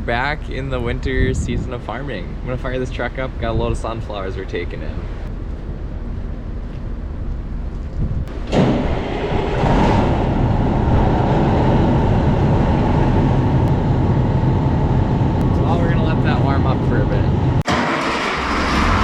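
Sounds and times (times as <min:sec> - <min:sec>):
diesel truck engine starting and idling: 0:08.3 - 0:19.0.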